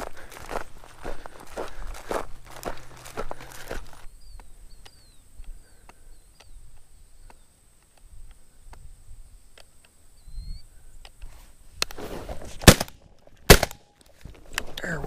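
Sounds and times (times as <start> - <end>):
rustle of movement: 0.0 - 13.4
small bird chirping faintly: 4.0 - 11.4
light clicks: 4.4 - 8.8.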